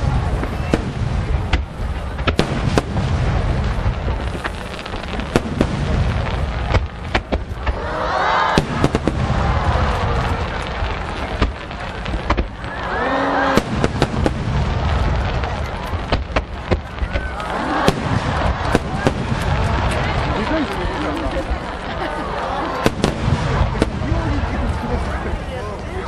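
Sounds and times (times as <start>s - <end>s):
firework shells bursting: 8.4s - 24.1s.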